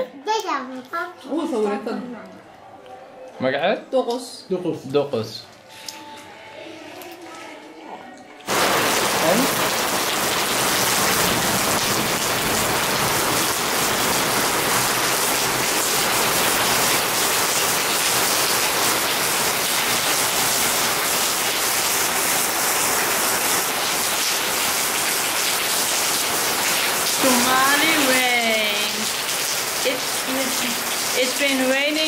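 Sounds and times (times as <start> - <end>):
rain on tiled floor: 8.4 - 32.0.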